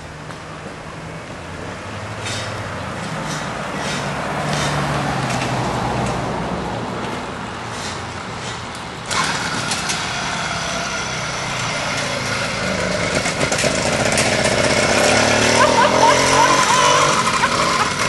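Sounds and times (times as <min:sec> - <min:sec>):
small motorbike engine running: 0:09.1 - 0:18.0.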